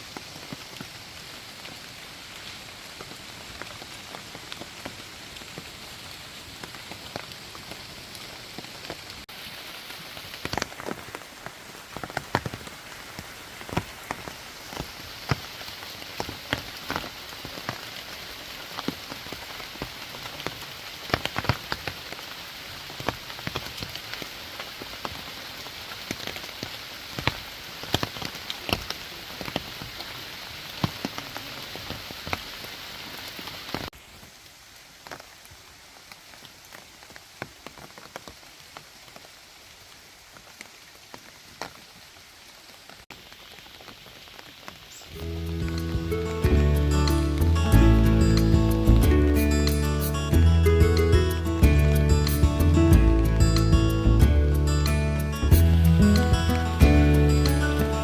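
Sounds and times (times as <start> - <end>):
water splashes and drops: 0.0 - 38.4
waterfall rushing: 45.1 - 58.0.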